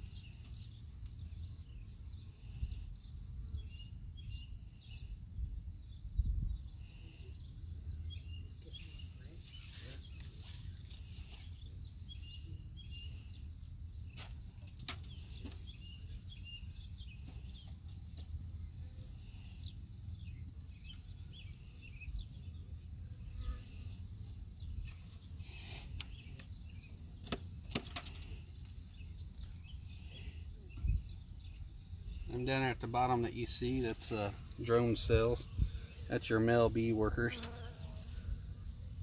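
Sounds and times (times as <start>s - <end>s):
faint bird chirps: 0.0s - 32.9s
wooden hive frames clicking: 27.2s - 28.5s.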